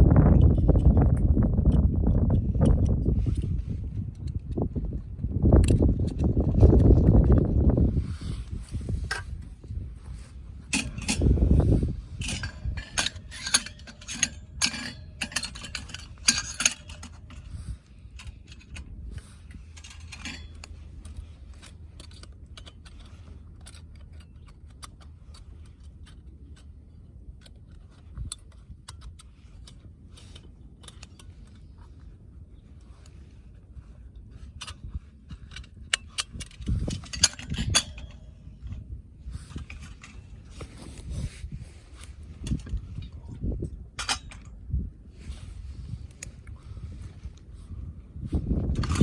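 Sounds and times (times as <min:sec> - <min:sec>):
wind buffeting microphone: 0:00.0 - 0:21.9, 0:31.3 - 0:49.0
low wind rumble: 0:00.0 - 0:49.0
light metallic clinking and rattling: 0:08.6 - 0:26.8, 0:32.7 - 0:49.0.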